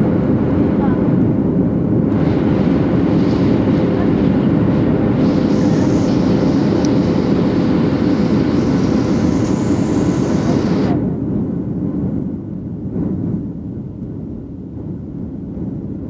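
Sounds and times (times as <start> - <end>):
airliner engines roaring: 0.0 - 11.8
faint hum: 2.1 - 11.2
thin hiss: 5.1 - 11.0.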